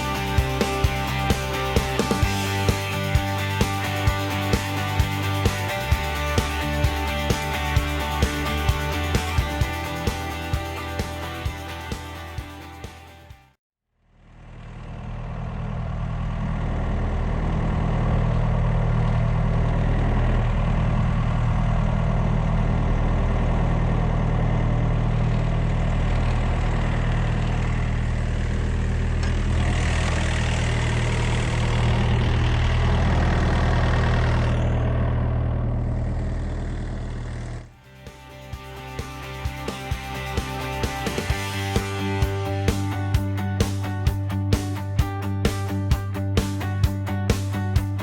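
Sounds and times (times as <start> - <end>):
diesel engine idling: 14.0 - 48.0.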